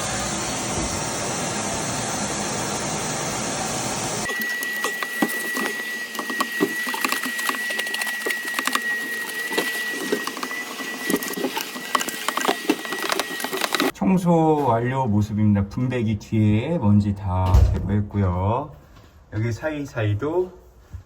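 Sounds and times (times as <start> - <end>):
cleaning machine rushing air: 0.0 - 13.9
thin high whine: 0.0 - 13.9.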